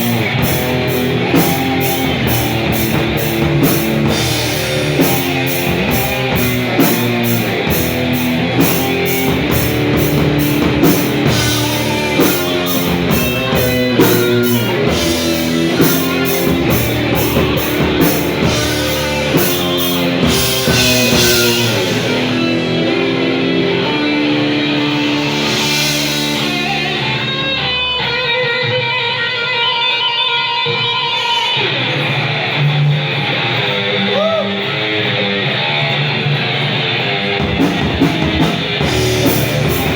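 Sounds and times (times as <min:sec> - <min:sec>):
bass: 0:00.0 - 0:39.9
drums with cymbal strokes: 0:00.0 - 0:39.9
electric guitar: 0:00.0 - 0:39.9.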